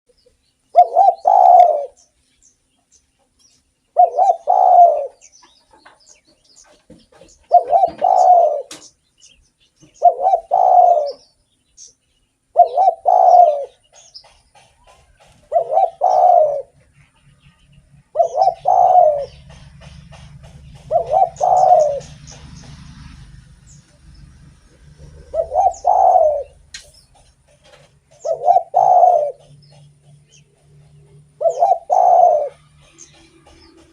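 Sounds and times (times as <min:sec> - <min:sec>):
dove cooing: 0:00.7 - 0:02.1, 0:03.9 - 0:06.0, 0:06.6 - 0:08.9, 0:09.8 - 0:11.4, 0:12.5 - 0:16.9, 0:18.0 - 0:23.3, 0:24.6 - 0:33.9.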